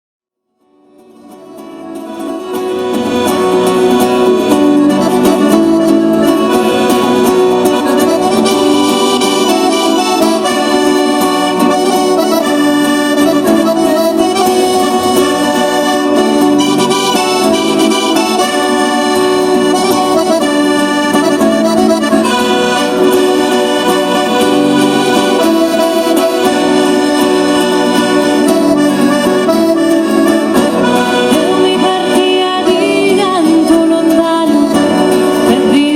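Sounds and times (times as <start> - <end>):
accordion folk music: 0.8 - 35.9.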